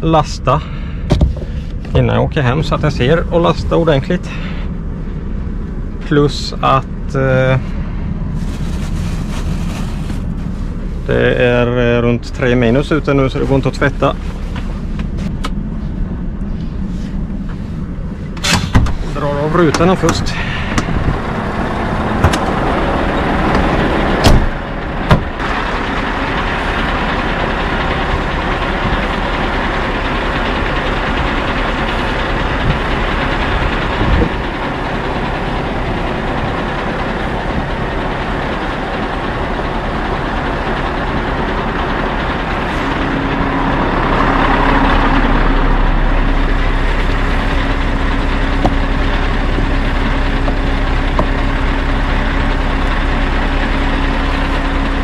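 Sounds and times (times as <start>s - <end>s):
diesel truck engine idling: 0.0s - 55.0s
steady low hum: 0.0s - 55.0s
sharp knocks: 23.5s - 25.4s.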